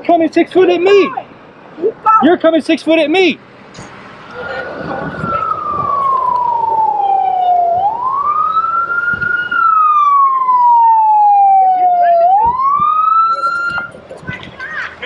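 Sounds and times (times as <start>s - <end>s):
police siren wailing: 4.4s - 14.0s.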